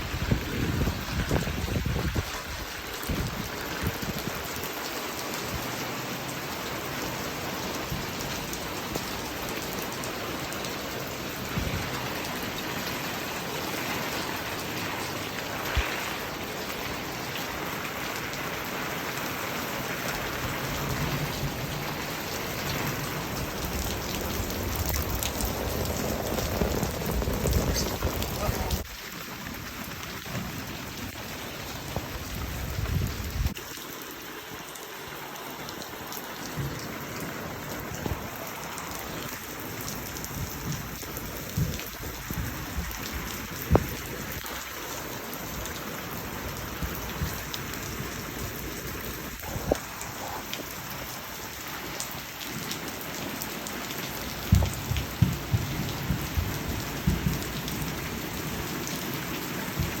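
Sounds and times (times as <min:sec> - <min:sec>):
low thunder rumbles: 0:00.0 - 0:04.4, 0:20.2 - 0:28.9, 0:29.6 - 0:33.6, 0:40.0 - 0:44.4, 0:54.3 - 0:58.8
heavy rain pouring: 0:00.0 - 1:00.0
raindrops ticking nearby: 0:00.0 - 1:00.0.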